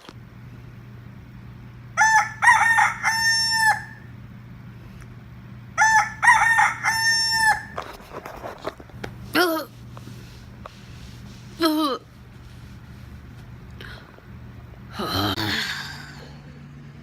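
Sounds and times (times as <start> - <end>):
faint low hum: 0.0 - 17.0
rooster crowing: 1.9 - 4.1, 5.8 - 7.9.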